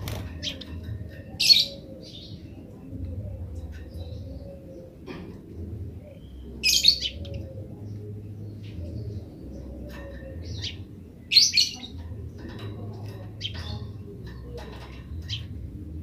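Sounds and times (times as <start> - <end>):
sparrow chattering chirps: 6.0 - 15.7.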